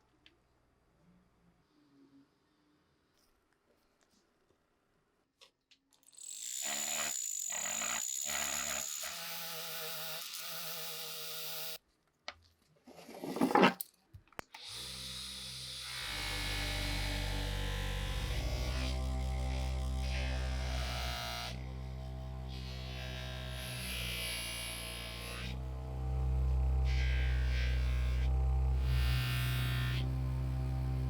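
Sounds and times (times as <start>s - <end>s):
small electric motor running: 6.0s - 11.8s, 14.6s - 31.0s.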